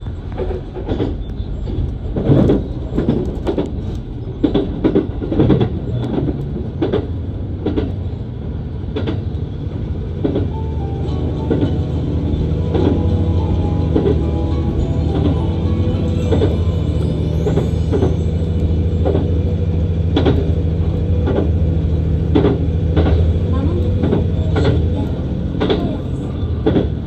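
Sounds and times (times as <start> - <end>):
train low rumble: 0.0 - 27.0
wheels clunking over rail joints: 0.0 - 27.0.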